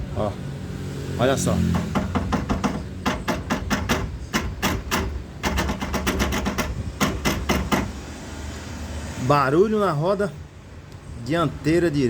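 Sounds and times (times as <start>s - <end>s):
metallic knocking of car axle: 1.6s - 8.2s.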